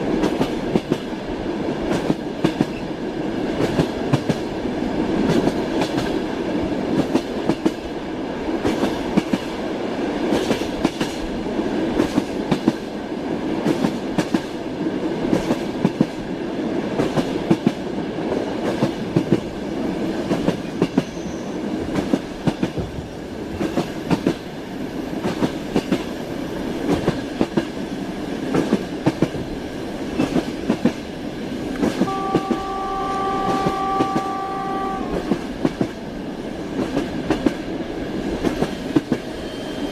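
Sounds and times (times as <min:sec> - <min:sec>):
train rolling rumble: 0:00.0 - 0:39.9
train wheels clattering: 0:20.2 - 0:24.5
train horn: 0:31.9 - 0:35.4.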